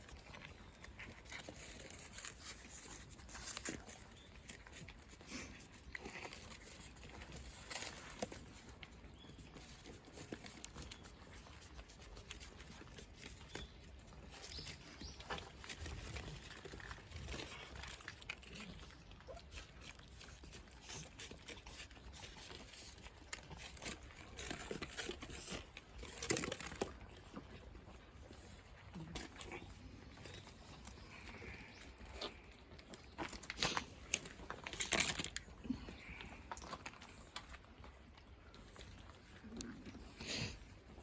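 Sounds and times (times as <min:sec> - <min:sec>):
cats crunching dry food: 0:00.0 - 0:41.0.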